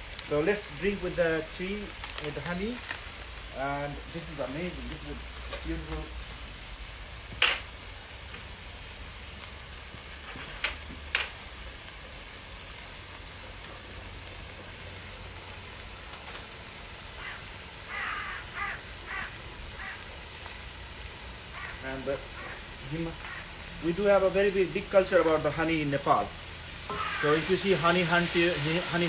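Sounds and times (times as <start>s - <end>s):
curry sizzling in a pan: 0.0s - 29.0s.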